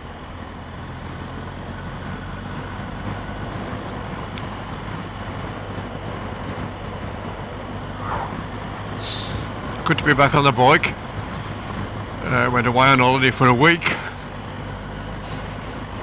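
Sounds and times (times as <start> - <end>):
motorcycle engine droning: 0.0 - 16.0
wind noise on microphone: 5.4 - 9.8.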